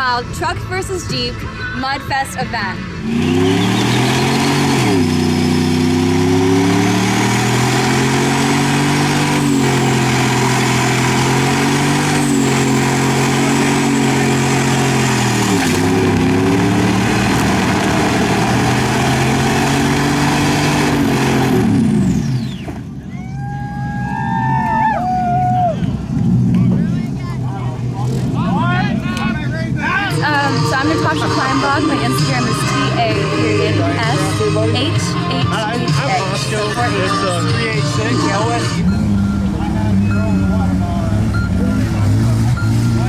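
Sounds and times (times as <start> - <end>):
vehicle engine revving hard: 2.8 - 22.8, 30.1 - 43.0
high whine: 29.7 - 43.0.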